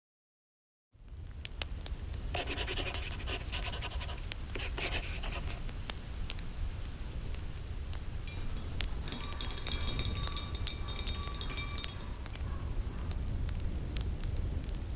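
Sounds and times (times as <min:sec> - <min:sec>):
wood fire crackling: 0:01.2 - 0:14.9
wind rumbling: 0:08.0 - 0:14.6.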